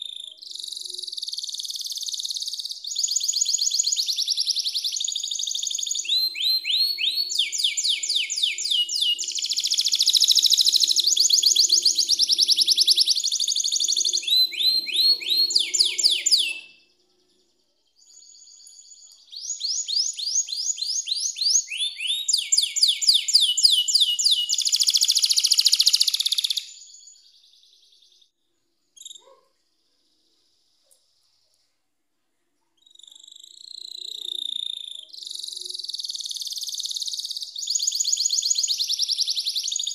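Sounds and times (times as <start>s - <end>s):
canary singing: 0.0s - 28.2s, 29.0s - 29.4s, 32.8s - 39.9s.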